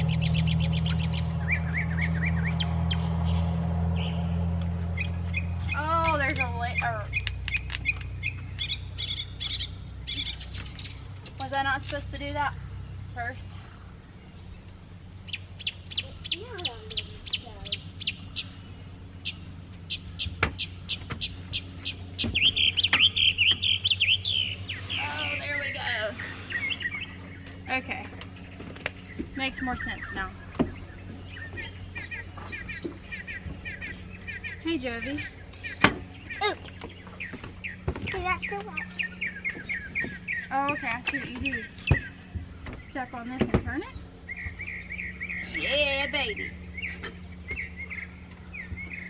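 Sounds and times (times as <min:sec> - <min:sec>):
low motor hum: 0:00.0 - 0:49.0
small birds chirping: 0:00.0 - 0:49.0
fast run of clicks: 0:07.1 - 0:08.7.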